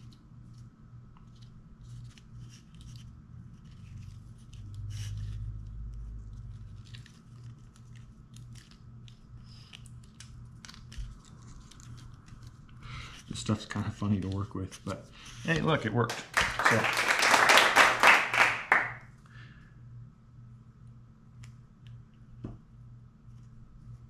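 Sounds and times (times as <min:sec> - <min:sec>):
low steady hum: 0:00.0 - 0:24.0
foil tape crinkling: 0:05.8 - 0:14.5.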